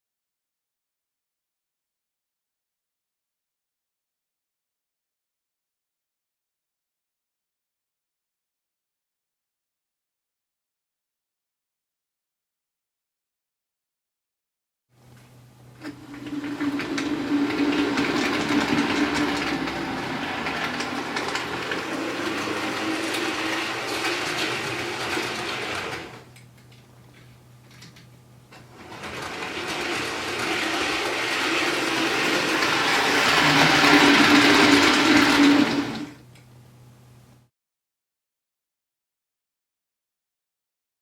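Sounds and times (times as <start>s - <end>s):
model train motor humming: 15.8s - 26.2s, 28.8s - 36.2s
wheels rattling over rails: 15.8s - 26.2s, 28.6s - 36.2s.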